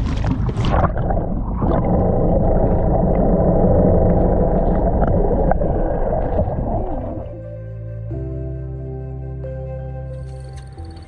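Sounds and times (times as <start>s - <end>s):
strong wind buffeting microphone: 0.0s - 7.5s.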